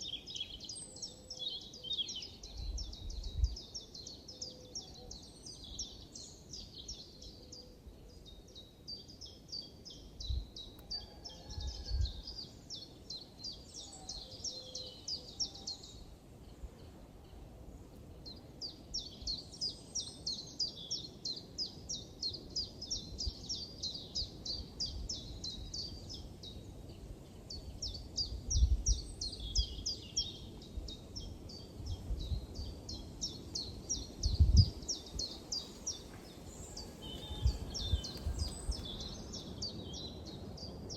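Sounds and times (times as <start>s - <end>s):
birds chirping: 33.2s - 40.8s.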